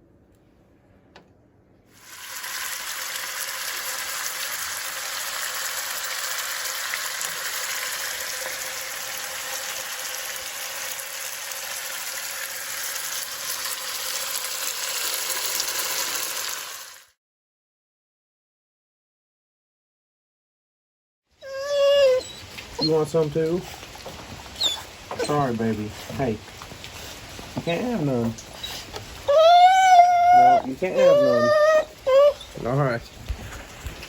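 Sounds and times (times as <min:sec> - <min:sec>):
fish frying in hot oil: 0:01.9 - 0:17.2.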